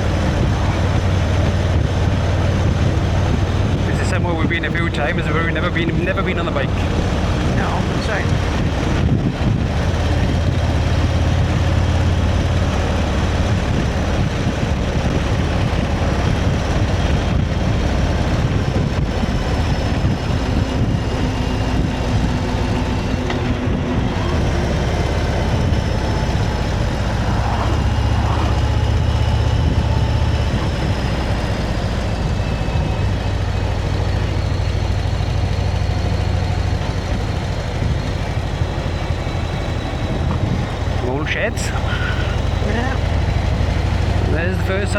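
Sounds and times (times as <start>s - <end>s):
motorcycle engine running: 0.0s - 44.9s
wind and road noise: 0.0s - 44.9s.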